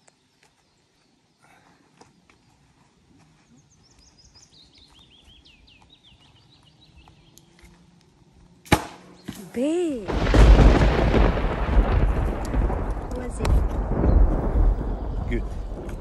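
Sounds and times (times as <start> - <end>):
songbird singing faintly: 0.0 - 10.1
quiet forest background: 0.0 - 16.0.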